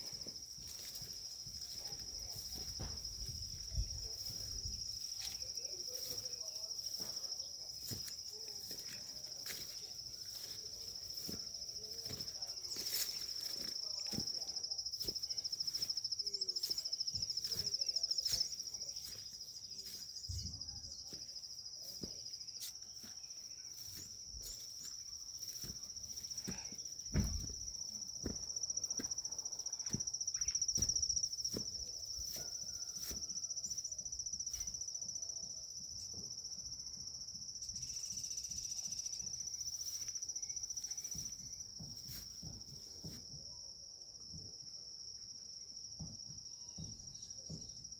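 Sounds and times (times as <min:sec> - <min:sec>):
crickets trilling: 0:00.0 - 0:47.9
loud thump: 0:27.1 - 0:27.6.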